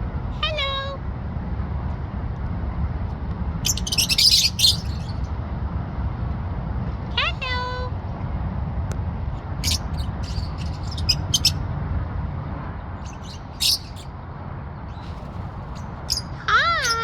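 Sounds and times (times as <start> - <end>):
parrot chirping and squeaking: 3.6 - 5.3, 9.6 - 11.6, 13.0 - 14.1, 14.9 - 17.0.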